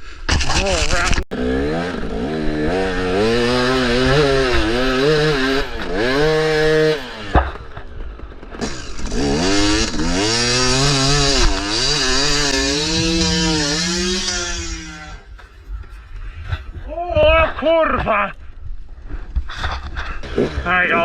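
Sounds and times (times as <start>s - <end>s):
dirt bike engine revving: 0.5s - 7.8s, 8.4s - 15.3s, 20.0s - 21.0s.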